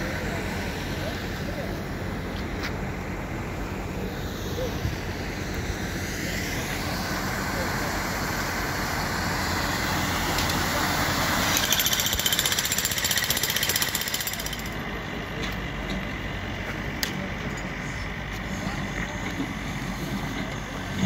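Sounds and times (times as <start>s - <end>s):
street and traffic noise: 0.0s - 21.0s
jackhammer hammering: 11.3s - 14.9s.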